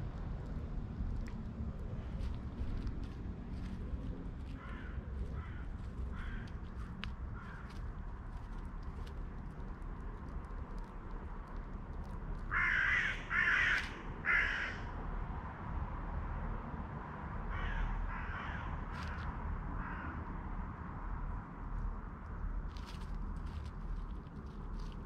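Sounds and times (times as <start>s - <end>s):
crow cawing: 4.6s - 6.6s, 7.3s - 7.7s, 12.5s - 14.9s, 17.5s - 20.2s.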